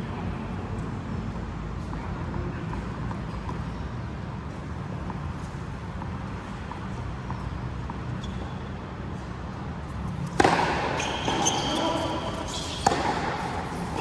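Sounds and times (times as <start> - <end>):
shoes squeaking on court: 5.4 - 9.3, 9.9 - 14.0
racket striking ball: 10.2 - 14.0.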